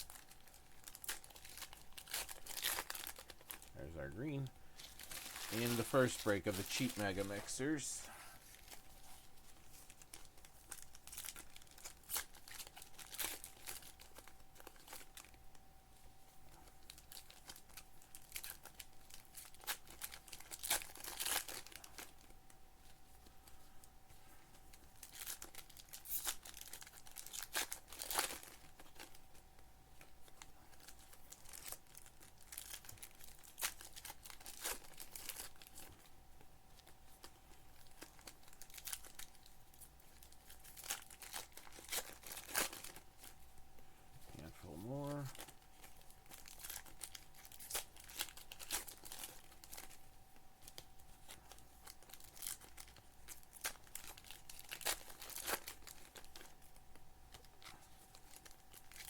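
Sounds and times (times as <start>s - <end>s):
card pack wrappers tearing: 0.0s - 8.9s, 9.6s - 15.4s, 16.6s - 22.4s, 24.7s - 29.4s, 30.0s - 36.1s, 36.8s - 43.5s, 44.3s - 50.0s, 50.6s - 59.0s
cards being handled: 4.4s - 13.4s.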